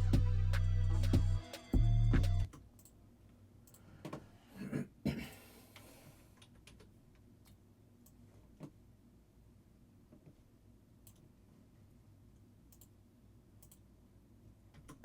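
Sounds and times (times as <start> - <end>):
hip-hop beat: 0.0 - 2.5.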